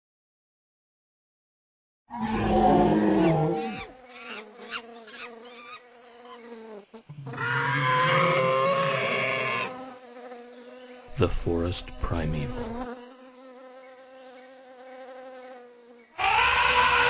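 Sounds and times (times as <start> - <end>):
loud animal-like sound: 2.1 - 5.3, 7.1 - 9.8, 16.2 - 17.0
insect buzzing: 2.1 - 17.0.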